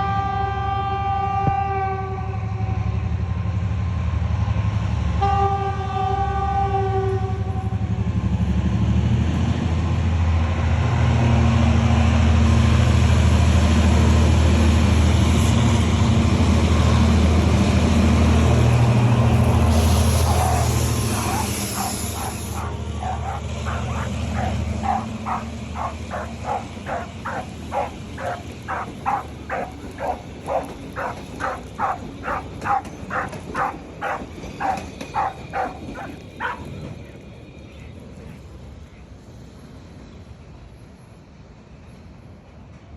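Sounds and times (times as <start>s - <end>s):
low train rumble: 0.0s - 42.9s
dog barking: 18.5s - 36.8s.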